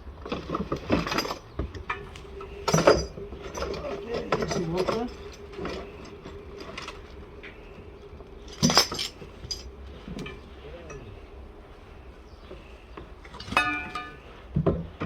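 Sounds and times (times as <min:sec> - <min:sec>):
handling clinks and knocks: 0:00.3 - 0:07.2, 0:08.0 - 0:11.1.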